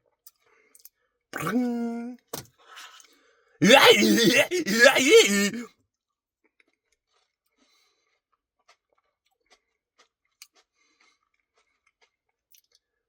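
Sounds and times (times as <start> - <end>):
chewing with small crunches: 8.6 - 12.8.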